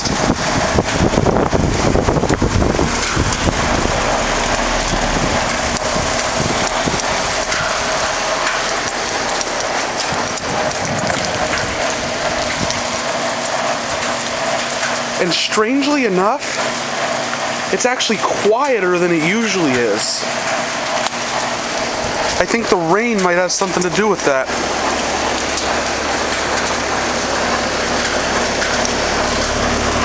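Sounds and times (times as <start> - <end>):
low rumble: 0.0 - 13.0
falling rain: 0.0 - 30.0
heat pump humming: 0.0 - 30.0.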